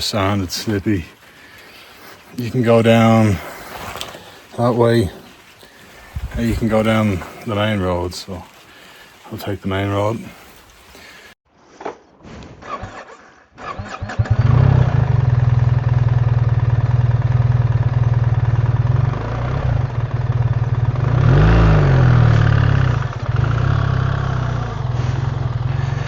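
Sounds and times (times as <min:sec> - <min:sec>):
motorcycle engine starting and idling: 0:12.8 - 0:26.0
engine revving: 0:13.8 - 0:26.0.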